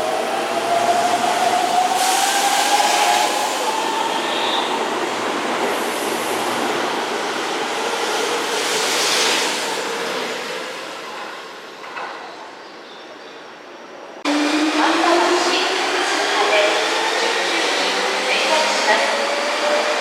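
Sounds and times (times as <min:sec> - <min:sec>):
electric train rail noise: 0:00.0 - 0:12.3, 0:14.3 - 0:20.0.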